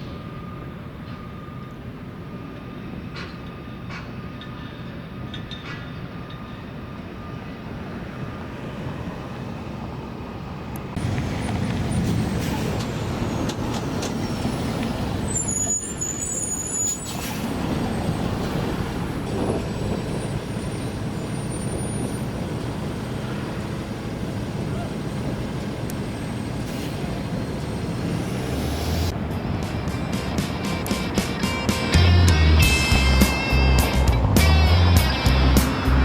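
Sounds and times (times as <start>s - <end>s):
heavy vehicle traffic: 0.0s - 36.0s
brakes squealing: 11.0s - 36.0s.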